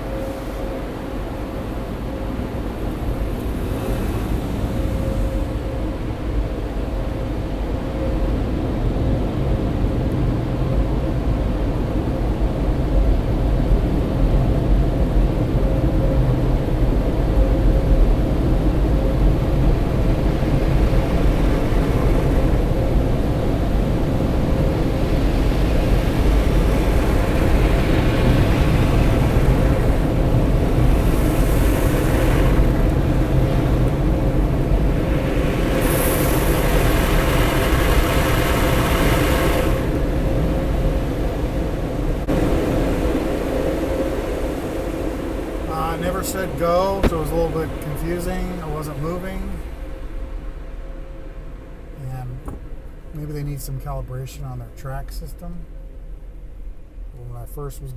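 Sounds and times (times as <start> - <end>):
car wash machinery rumbling: 0.0 - 57.7
constant hum: 0.0 - 57.9
hiss: 35.6 - 39.7.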